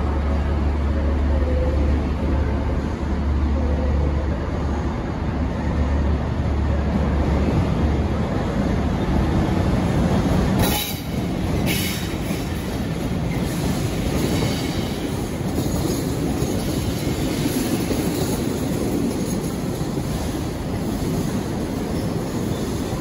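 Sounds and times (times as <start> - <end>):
diesel locomotive engine drone: 0.0 - 23.0.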